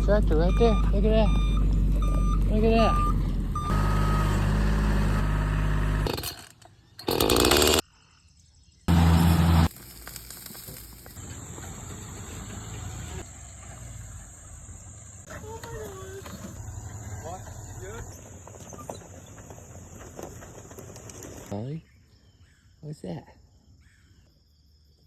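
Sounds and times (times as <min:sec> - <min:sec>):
tractor engine running: 0:00.0 - 0:07.8, 0:08.9 - 0:21.5
steady outdoor noise: 0:08.9 - 0:21.8.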